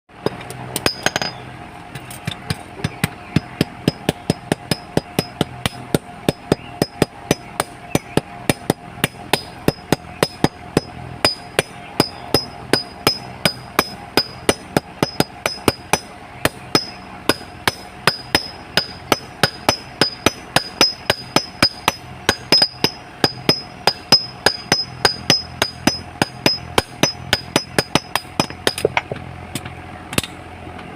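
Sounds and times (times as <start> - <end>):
hammer striking metal on anvil: 0.2 - 1.4, 2.3 - 29.2.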